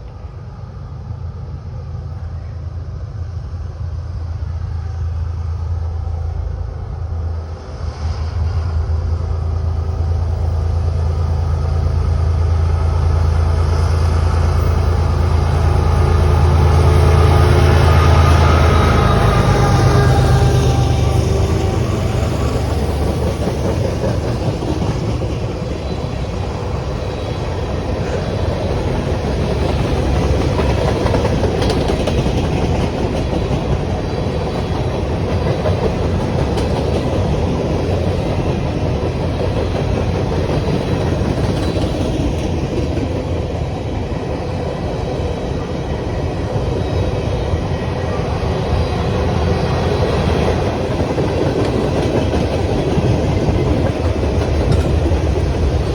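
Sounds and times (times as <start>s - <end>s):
train wheels rumbling on rails: 0.0s - 55.9s
clicking over rail joints: 51.0s - 55.7s.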